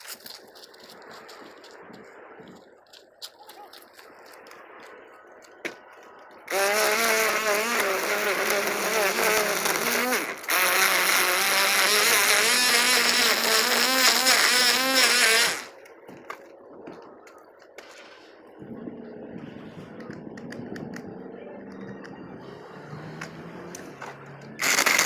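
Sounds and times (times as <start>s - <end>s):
string trimmer running: 6.5s - 15.7s, 23.2s - 25.0s.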